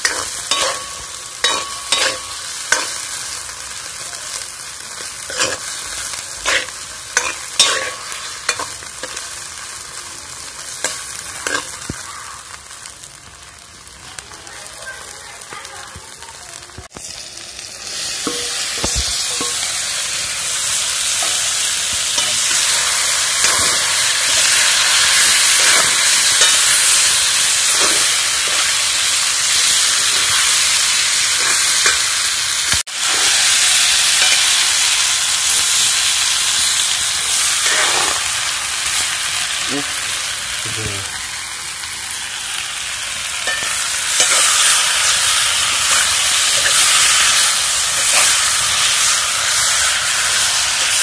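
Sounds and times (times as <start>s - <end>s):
metal ladle scraping wok: 0.0s - 3.1s, 5.2s - 9.2s, 10.8s - 11.8s, 18.0s - 20.0s, 20.7s - 30.5s, 43.4s - 51.0s
chicken sizzling in a wok: 0.0s - 51.0s.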